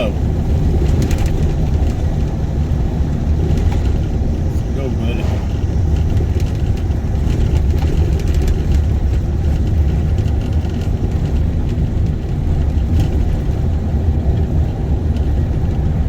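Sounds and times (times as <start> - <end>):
vehicle engine and tyre rumble: 0.0 - 16.0.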